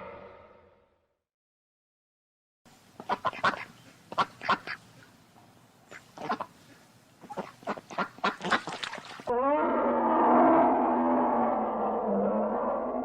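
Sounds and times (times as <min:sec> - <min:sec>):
duck quacking: 0:03.0 - 0:05.1, 0:05.9 - 0:09.2
continuous animal call: 0:05.9 - 0:13.0.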